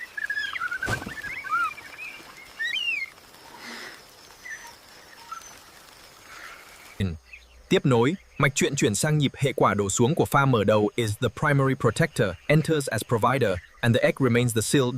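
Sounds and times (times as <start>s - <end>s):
birds chirping and whistling: 0.0s - 5.7s.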